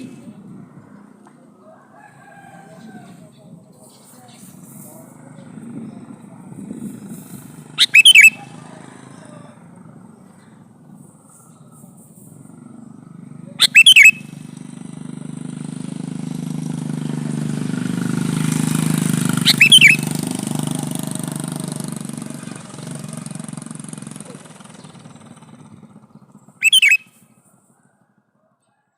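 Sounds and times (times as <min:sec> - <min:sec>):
passing vehicle engine hum: 0:00.0 - 0:28.2
bulbul calling: 0:07.0 - 0:08.6, 0:13.4 - 0:14.5, 0:19.3 - 0:20.2, 0:26.6 - 0:27.2.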